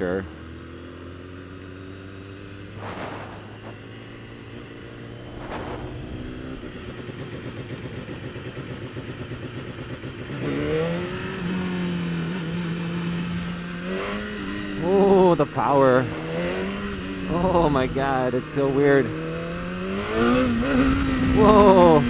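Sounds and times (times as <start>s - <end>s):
motorcycle engine running: 0.0s - 22.0s
brief rushes of noise: 2.7s - 3.9s, 5.2s - 6.6s.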